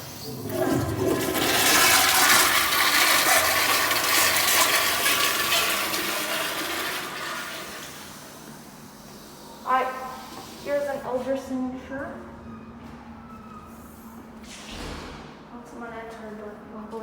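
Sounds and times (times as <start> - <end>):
toilet flushing: 0.0 - 9.4.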